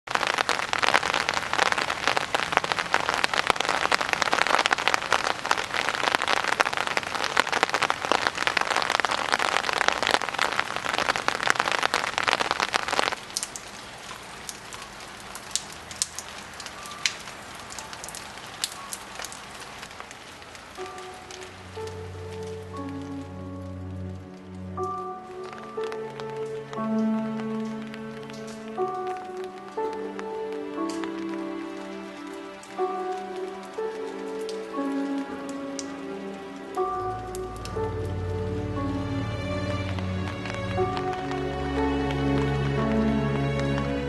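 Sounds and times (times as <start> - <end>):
heavy rain patter: 0.0 - 44.0.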